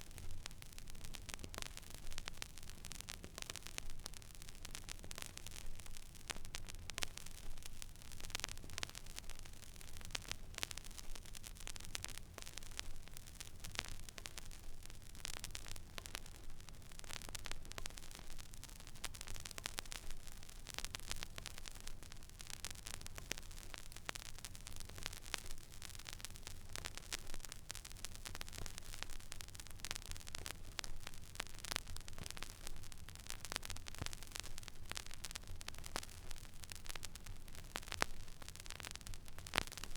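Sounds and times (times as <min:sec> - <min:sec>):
vinyl crackles and pops: 0:00.0 - 0:39.9.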